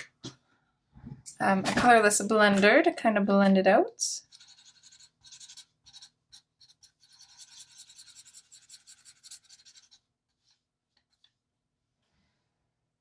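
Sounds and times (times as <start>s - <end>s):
marker scratching on paper: 4.2s - 10.0s.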